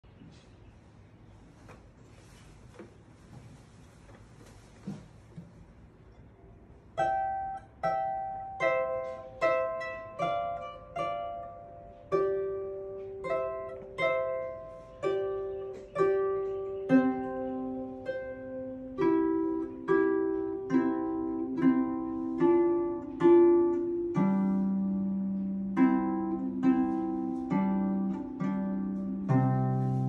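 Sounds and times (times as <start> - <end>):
harp notes plucked slowly: 7.0 - 30.0.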